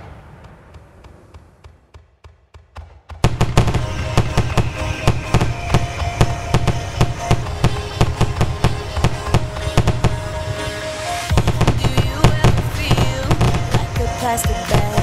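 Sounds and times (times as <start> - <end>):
fireworks bangs and crackles: 0.0 - 15.0
music playing: 3.3 - 15.0.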